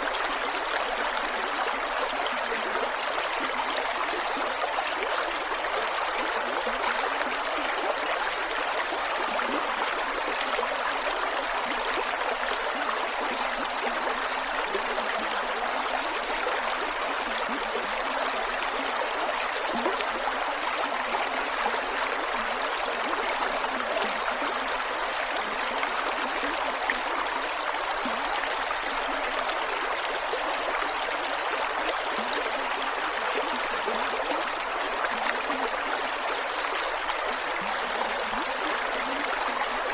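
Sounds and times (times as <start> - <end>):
creek water gurgling over rocks: 0.0 - 39.9.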